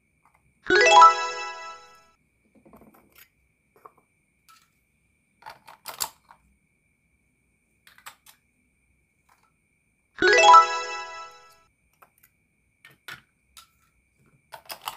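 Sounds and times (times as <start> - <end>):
plastic toy pieces tapping: 5.4 - 6.5, 7.8 - 8.4, 11.9 - 14.9.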